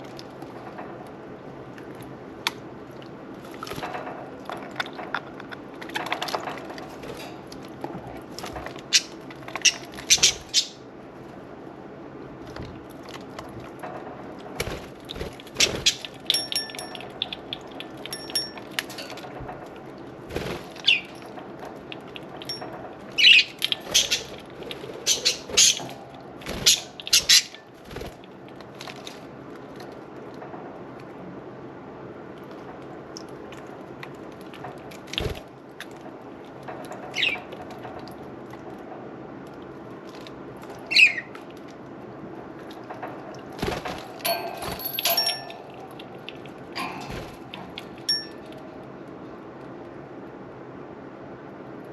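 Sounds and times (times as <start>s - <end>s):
budgerigars chirping and squeaking: 8.9s - 10.8s, 23.2s - 24.3s, 25.0s - 25.9s, 26.6s - 27.6s, 40.9s - 41.3s.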